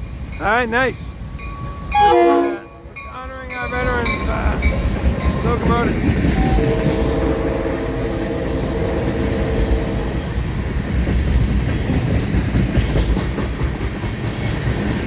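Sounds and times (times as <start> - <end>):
freight cars rumbling past: 0.4 - 15.0
locomotive engine drone: 1.1 - 11.4
train wheel clicks on rail joints: 10.9 - 15.0.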